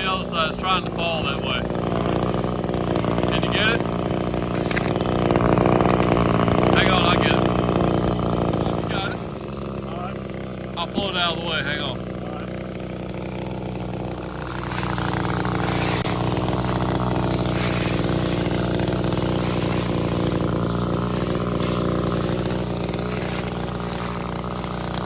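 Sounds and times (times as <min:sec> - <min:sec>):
pole saw engine revving: 0:00.0 - 0:25.0.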